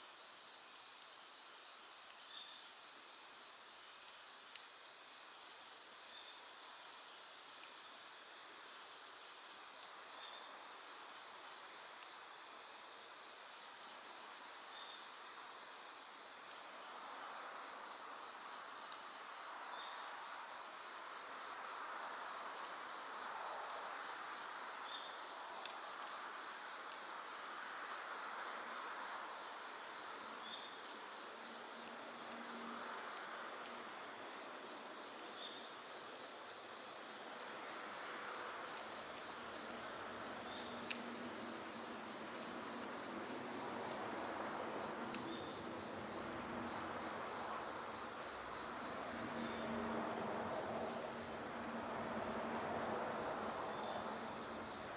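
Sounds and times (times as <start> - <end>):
night insects trilling: 0.0 - 54.9
campfire crackling: 25.2 - 28.6, 38.5 - 49.4.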